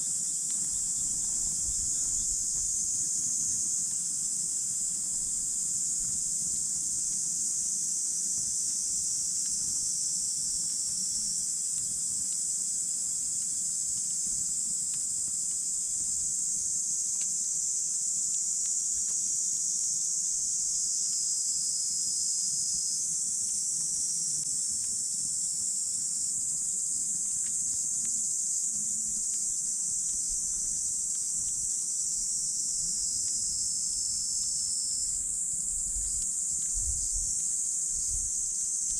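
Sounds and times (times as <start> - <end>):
campfire crackles and ticks: 0.0 - 38.9
insects chirring: 0.0 - 38.9.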